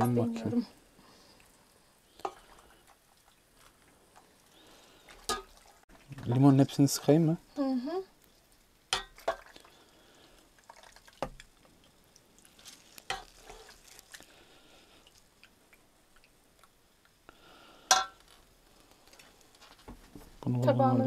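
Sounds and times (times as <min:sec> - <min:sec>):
small drips: 0:01.2 - 0:06.8, 0:08.2 - 0:19.8
dishware clinking: 0:17.9 - 0:18.2.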